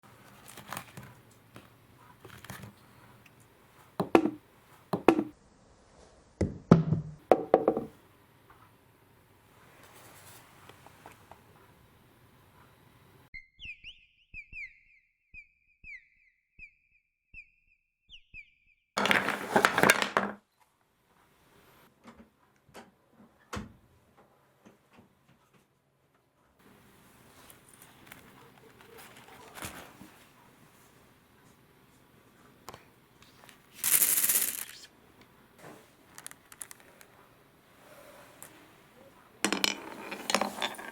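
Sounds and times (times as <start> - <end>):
wooden pieces knocking and clattering: 19.0 - 20.4, 33.8 - 34.8, 36.1 - 37.1, 39.4 - 40.9
marbles clicking and knocking: 33.8 - 34.8, 36.1 - 37.0.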